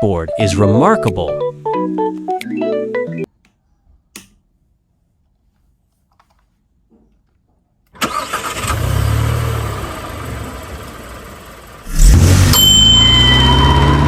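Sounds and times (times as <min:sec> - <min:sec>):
car engine starting and running: 0:08.0 - 0:14.0.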